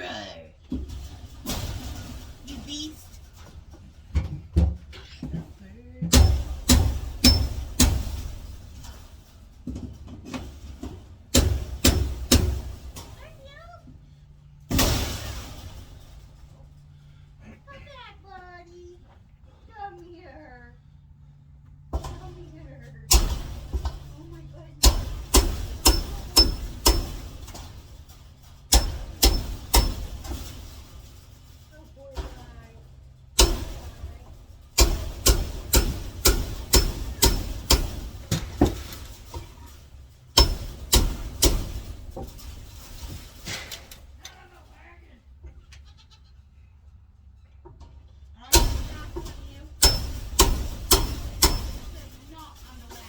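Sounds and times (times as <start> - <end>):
sharp metallic knocks: 0.7 - 13.8, 14.6 - 17.2, 23.0 - 44.2, 48.5 - 53.0.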